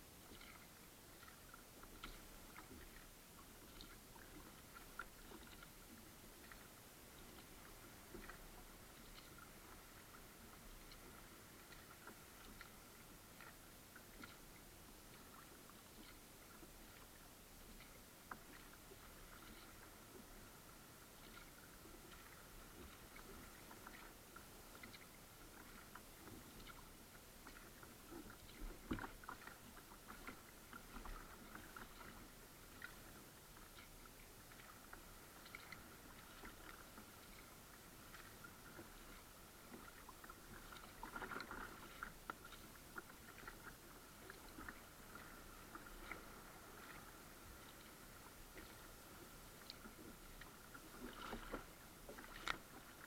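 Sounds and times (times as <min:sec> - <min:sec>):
paddle drips and clicks: 0:00.2 - 0:20.5, 0:21.2 - 0:53.0
water splashing: 0:24.7 - 0:49.0, 0:49.6 - 0:53.0.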